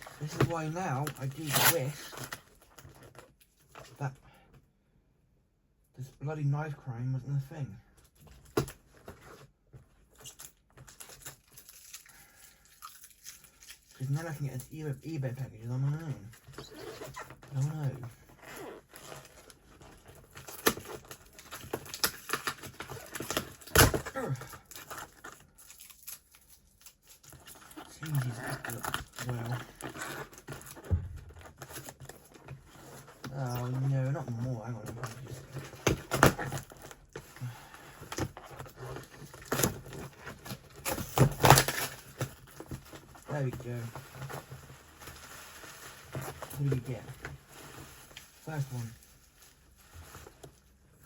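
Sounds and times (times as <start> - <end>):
packaging being torn open: 0.0 - 3.3, 20.2 - 30.8, 38.7 - 42.4
packaging crinkling and tearing: 0.0 - 3.9, 10.1 - 14.8, 15.9 - 51.0.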